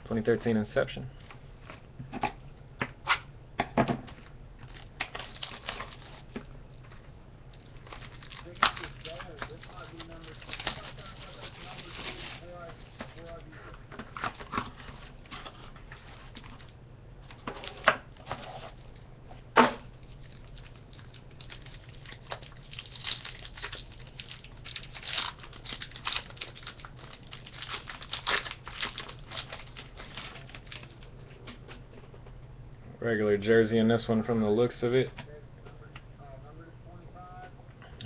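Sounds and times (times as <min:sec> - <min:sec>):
plastic and cardboard tearing: 0:04.8 - 0:06.3, 0:07.8 - 0:13.4, 0:14.0 - 0:16.7, 0:17.3 - 0:18.8, 0:20.2 - 0:31.0.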